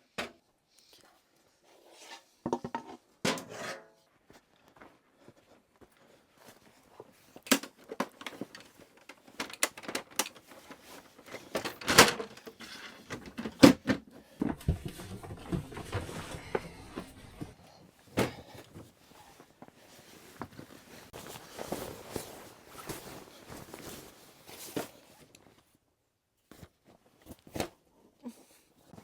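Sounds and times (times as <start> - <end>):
rustling of handled objects: 4.1 - 13.4, 14.4 - 25.8
objects knocking and clicking: 14.4 - 17.5.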